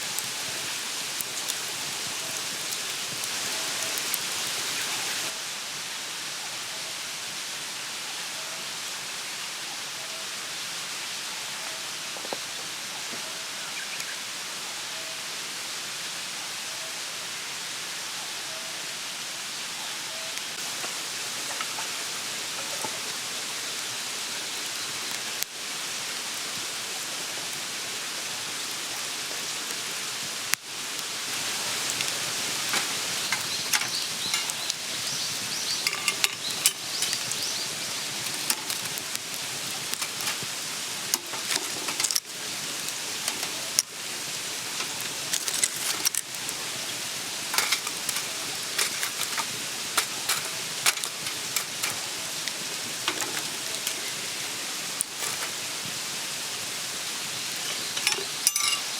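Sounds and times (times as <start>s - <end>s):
fire crackling and popping: 0.0s - 5.4s, 20.5s - 58.9s
food sizzling over campfire: 0.0s - 58.9s.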